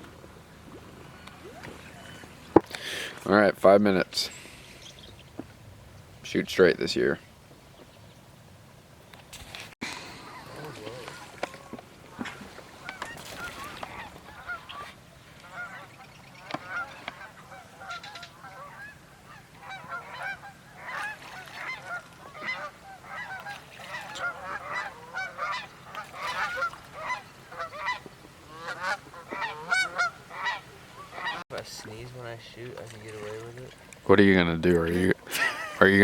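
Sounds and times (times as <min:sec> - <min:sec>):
waterfowl honking: 0:10.1 - 0:31.4.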